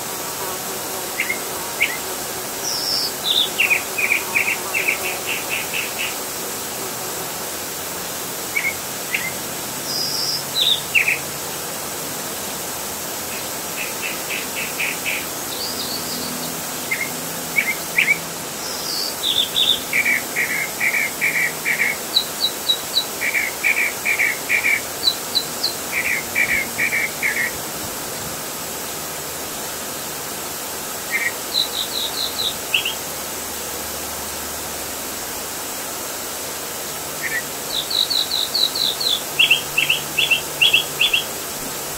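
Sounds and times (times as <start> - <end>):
outdoor background hiss: 0.0 - 41.9
small songbirds chirping: 2.6 - 6.2, 8.5 - 11.2, 13.3 - 27.6, 31.0 - 33.1, 37.2 - 41.4.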